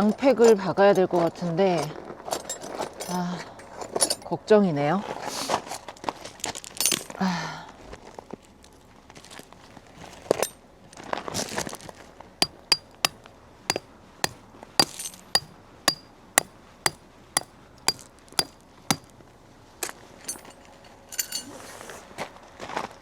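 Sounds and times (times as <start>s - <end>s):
hammer striking steel tent pegs: 12.4s - 13.0s, 13.7s - 16.0s, 17.9s - 19.0s.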